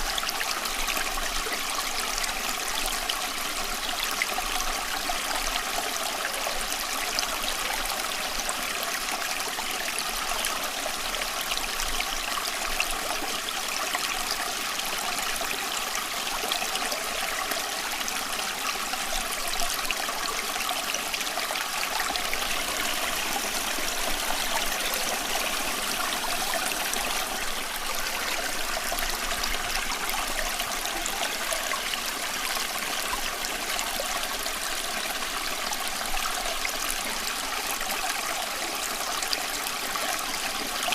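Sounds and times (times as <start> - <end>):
running water splashing and trickling: 15.2 - 38.2.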